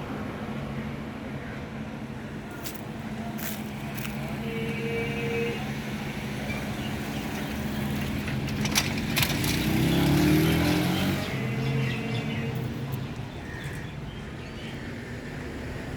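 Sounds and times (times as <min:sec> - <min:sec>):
traffic engines running: 0:00.0 - 0:15.9
vehicle accelerating: 0:06.5 - 0:13.3.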